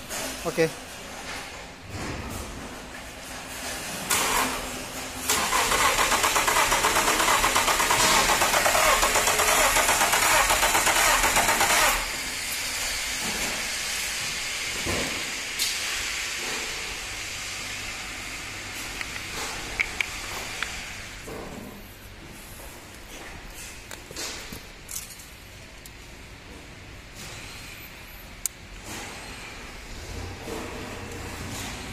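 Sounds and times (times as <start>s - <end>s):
petrol engine cranking and starting: 4.1s - 12.4s.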